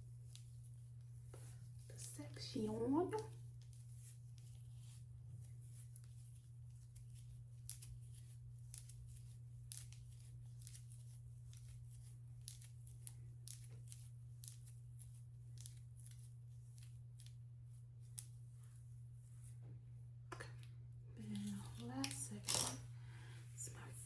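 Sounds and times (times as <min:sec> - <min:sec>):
hair crackling and rustling: 0:00.0 - 0:19.8
steady low hum: 0:00.0 - 0:24.0.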